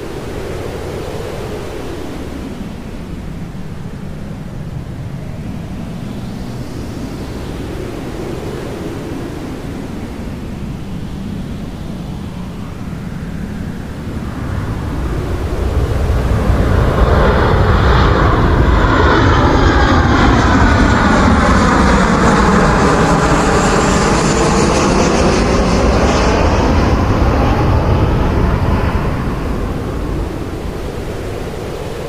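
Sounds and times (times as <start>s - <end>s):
airliner engines roaring overhead: 0.0s - 32.0s.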